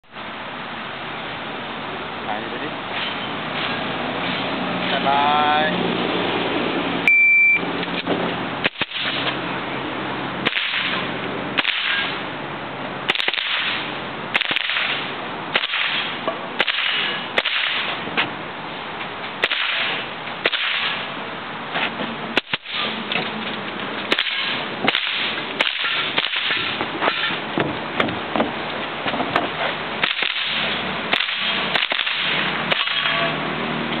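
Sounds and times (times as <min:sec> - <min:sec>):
short beep: 0:07.1 - 0:07.7
rifle shots: 0:08.6 - 0:09.4, 0:10.4 - 0:12.2, 0:13.1 - 0:18.0, 0:19.4 - 0:21.1, 0:22.4 - 0:23.0, 0:24.1 - 0:27.4, 0:30.0 - 0:33.2.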